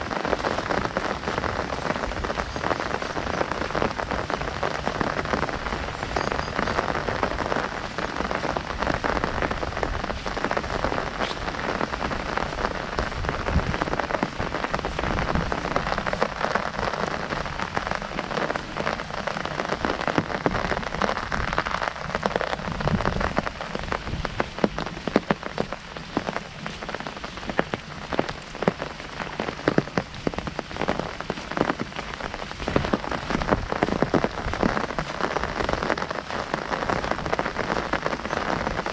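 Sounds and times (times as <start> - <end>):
heavy rain on an umbrella: 0.0 - 38.9.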